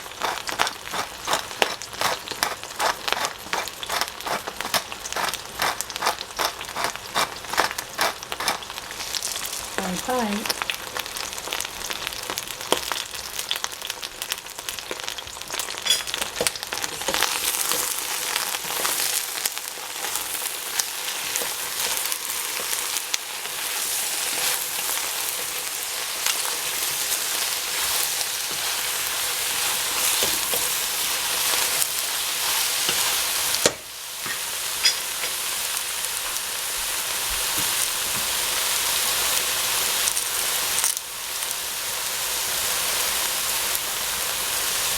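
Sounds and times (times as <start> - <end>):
oil crackles and pops: 0.0 - 32.0
eggplant sizzling in oil: 0.0 - 44.9.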